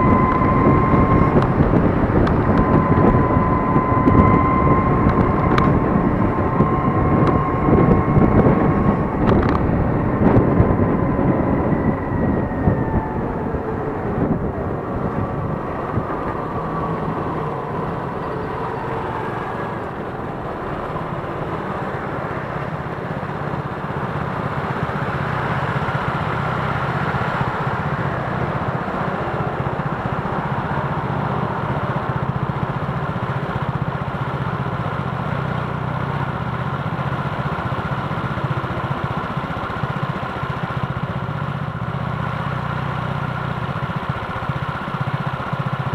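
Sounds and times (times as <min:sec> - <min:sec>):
thin electric whine: 0:00.0 - 0:22.6
motorcycles and cars passing: 0:00.0 - 0:45.9
road and traffic noise: 0:00.0 - 0:45.9.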